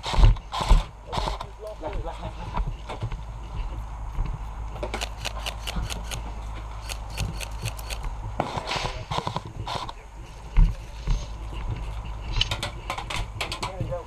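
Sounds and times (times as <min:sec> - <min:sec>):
heavy thump: 0:08.6 - 0:09.7.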